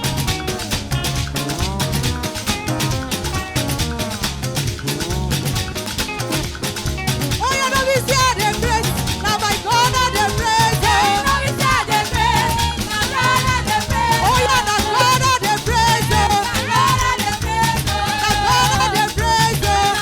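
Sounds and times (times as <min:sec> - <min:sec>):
band playing latin groove: 0:00.0 - 0:20.0
choir singing: 0:10.2 - 0:20.0.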